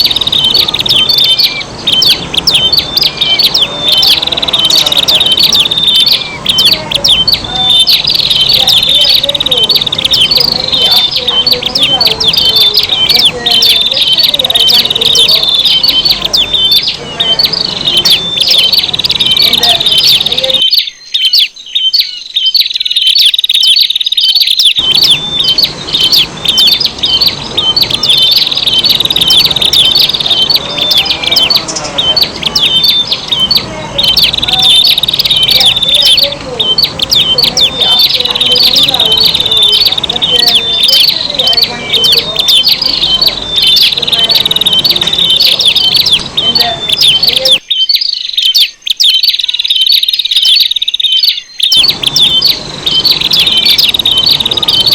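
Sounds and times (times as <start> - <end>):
birds chirping and trilling: 0.0 - 54.9.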